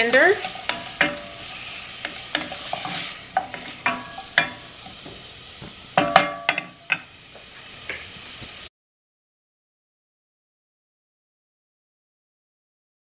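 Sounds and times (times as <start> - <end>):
vegetables sizzling in butter: 0.0 - 8.7
wooden spatula knocking a saucepan: 0.4 - 1.4, 2.0 - 7.0.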